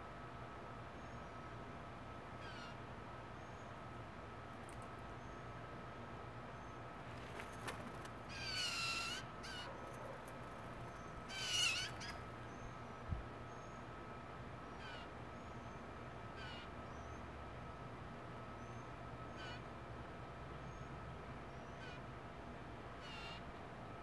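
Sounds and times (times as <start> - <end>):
harsh down-curving bird calls: 8.3 - 9.8, 11.0 - 12.7.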